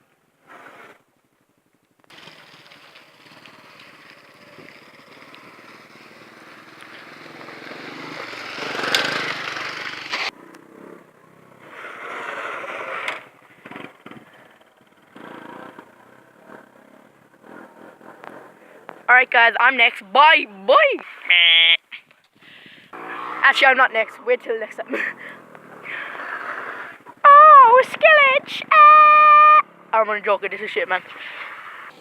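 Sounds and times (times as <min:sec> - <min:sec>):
motorbike engine running: 0:02.1 - 0:11.6.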